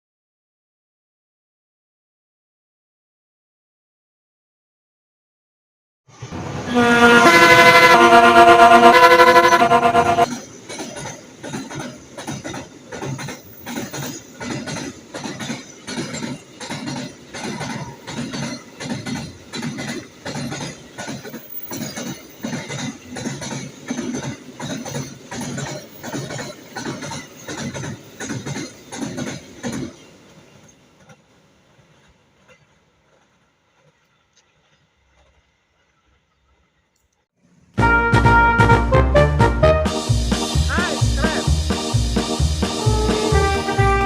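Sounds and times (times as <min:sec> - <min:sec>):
train wheels clacking over rails: 0:06.2 - 0:36.2, 0:40.0 - 0:44.0.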